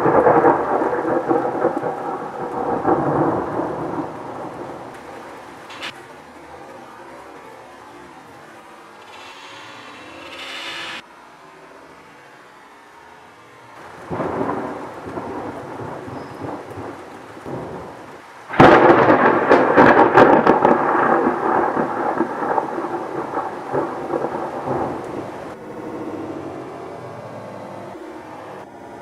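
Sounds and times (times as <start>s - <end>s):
loud thunder crack: 0.0s - 6.0s, 13.8s - 25.6s
rolling crackling thunder: 0.0s - 7.0s, 13.8s - 25.6s
rain: 0.0s - 29.0s.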